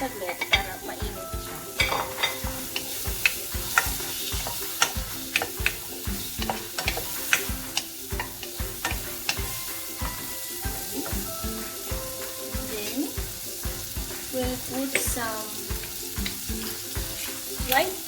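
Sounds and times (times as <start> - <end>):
utensil scraping a pan: 0.0 - 9.6
food sizzling in a frying pan: 0.0 - 18.0.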